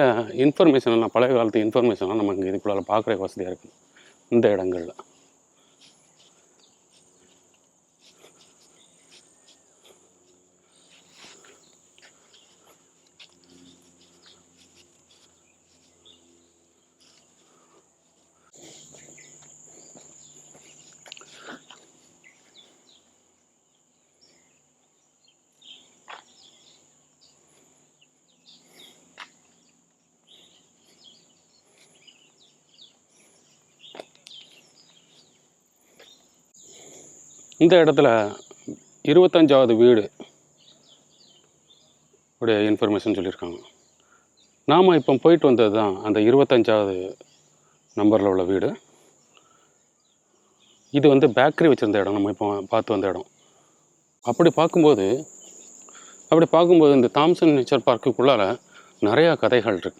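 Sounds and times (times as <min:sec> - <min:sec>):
high-pitched insect drone: 0:00.0 - 0:49.3.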